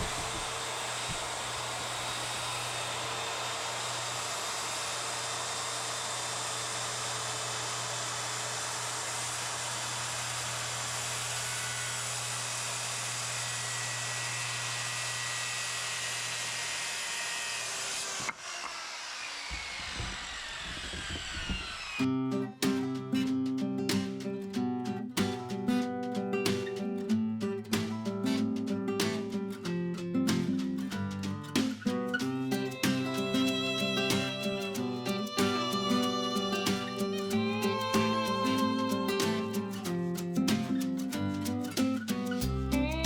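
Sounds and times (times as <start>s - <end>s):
power saw cutting wood: 0.0s - 22.1s, 32.2s - 39.8s.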